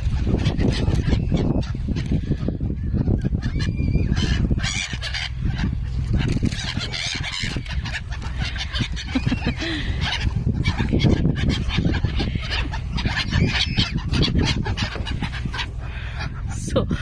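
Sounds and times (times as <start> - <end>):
birds honking and cawing: 0.0 - 17.0.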